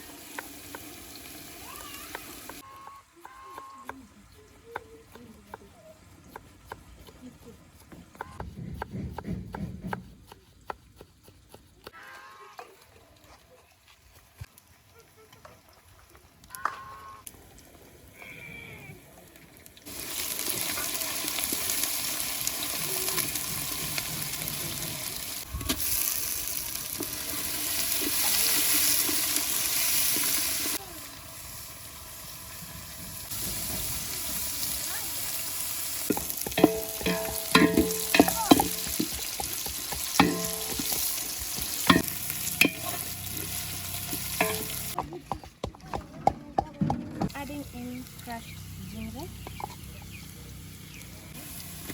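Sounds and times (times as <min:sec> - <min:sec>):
food sizzling in hot oil: 0:00.0 - 0:02.6, 0:19.8 - 0:45.0, 0:47.4 - 0:51.9.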